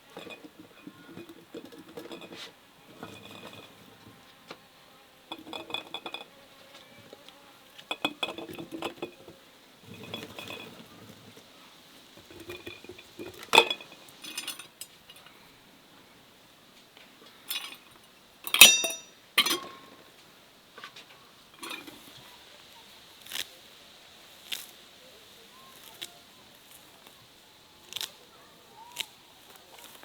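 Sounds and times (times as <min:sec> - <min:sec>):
dishes and utensils clinking: 0:00.0 - 0:03.8, 0:05.3 - 0:06.4, 0:09.9 - 0:10.9, 0:12.2 - 0:15.3, 0:18.5 - 0:19.9, 0:21.5 - 0:22.2.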